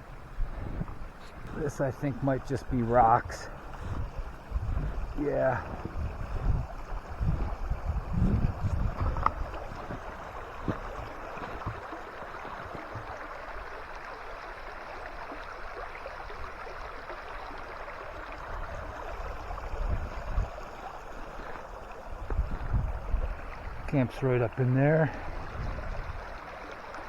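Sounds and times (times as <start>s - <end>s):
creek water rushing: 0.0s - 27.0s
soft low thumps: 3.0s - 13.2s.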